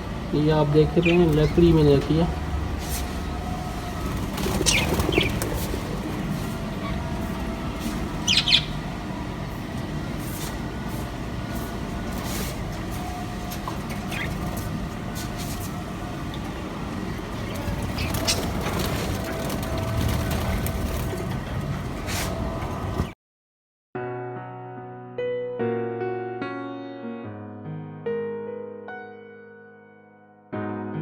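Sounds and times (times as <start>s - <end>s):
steady low rumble: 0.0s - 22.0s
parrots chirping: 0.8s - 2.0s, 4.0s - 7.5s, 8.1s - 8.9s, 13.9s - 14.6s, 17.2s - 19.6s
wings flapping: 2.9s - 8.8s, 13.5s - 23.1s.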